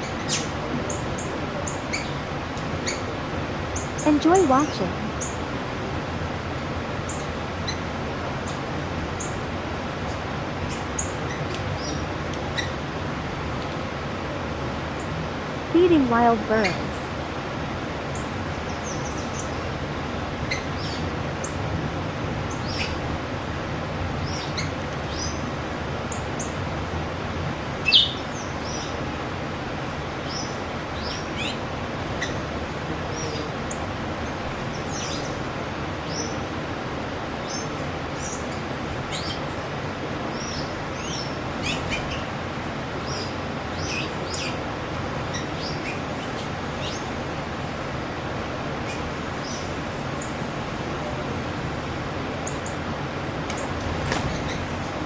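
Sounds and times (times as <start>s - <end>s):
birds chirping: 0.0s - 13.8s, 14.8s - 23.2s, 24.1s - 55.0s.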